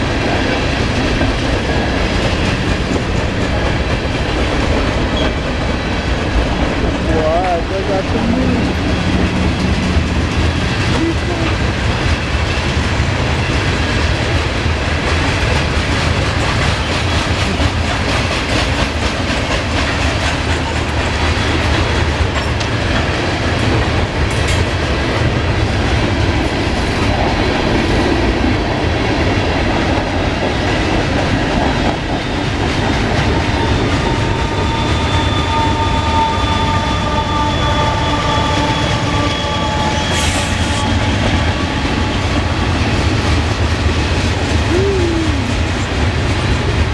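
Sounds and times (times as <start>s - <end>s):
freight train cars rumbling past: 0.0s - 46.9s
high-pitched wheel squeal: 33.7s - 41.8s.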